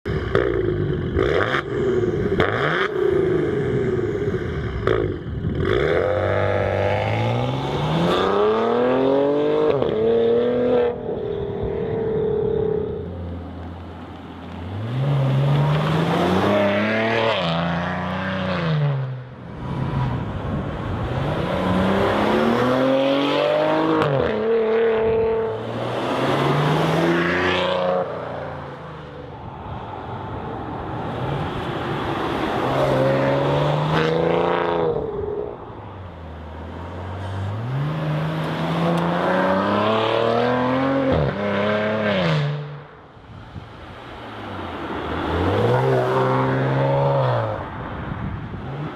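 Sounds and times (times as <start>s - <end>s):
car engine accelerating: 0.3s - 19.0s, 31.4s - 42.5s.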